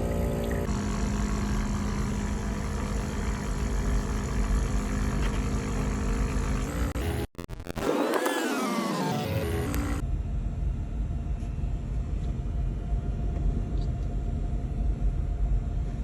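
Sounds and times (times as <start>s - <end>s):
coffee machine humming: 0.0s - 7.3s, 7.9s - 10.0s.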